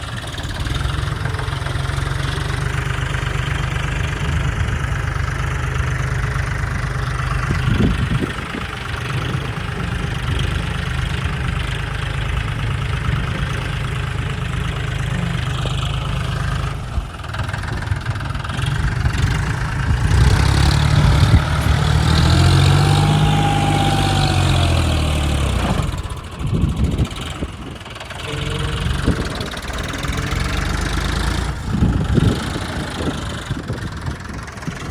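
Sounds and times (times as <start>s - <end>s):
tractor diesel engine running: 0.0s - 34.9s
thin engine whine: 7.2s - 34.9s.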